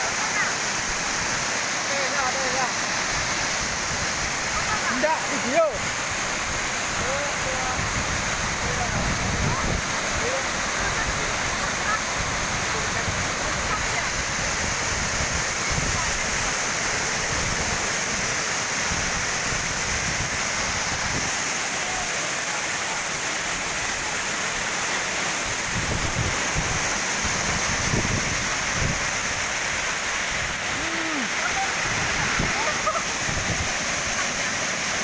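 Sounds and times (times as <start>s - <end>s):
waterfall pouring into pool: 0.0s - 35.0s.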